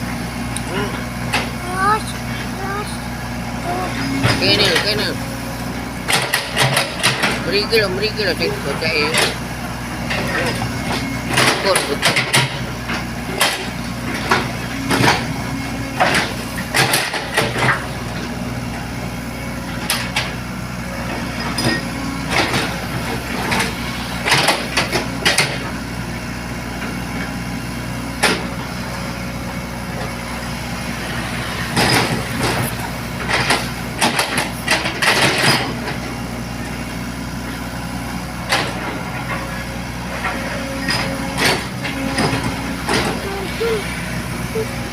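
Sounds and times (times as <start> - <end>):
diesel engine humming: 0.0 - 44.9
sharp knocks and clatters: 31.7 - 36.0.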